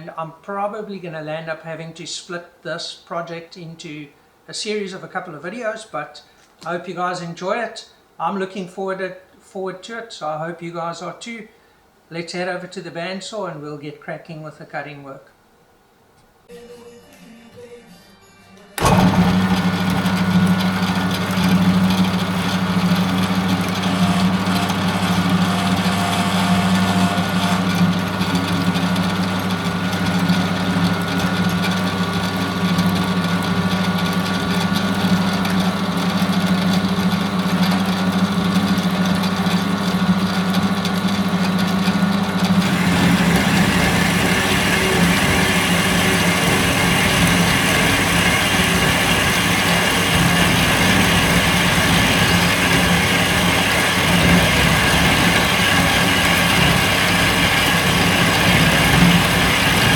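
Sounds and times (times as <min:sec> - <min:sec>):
metal-cutting bandsaw running: 0:18.8 - 0:59.9.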